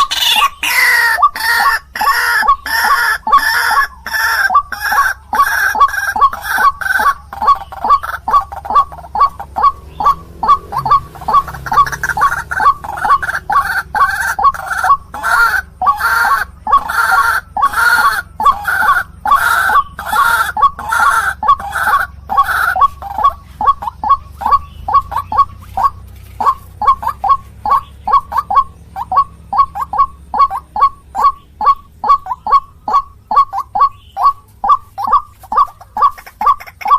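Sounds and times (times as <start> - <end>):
waterhen calling: 0.0 - 36.9.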